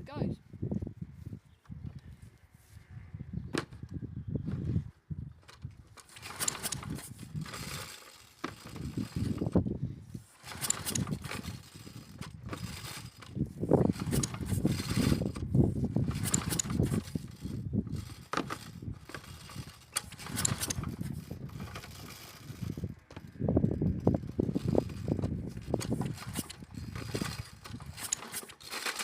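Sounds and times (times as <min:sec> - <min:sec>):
lawnmower engine turning over: 0:04.5 - 0:29.0
handling sounds: 0:05.4 - 0:09.6, 0:10.2 - 0:23.3, 0:24.0 - 0:29.0
recoil starter cord whirring: 0:05.4 - 0:29.0.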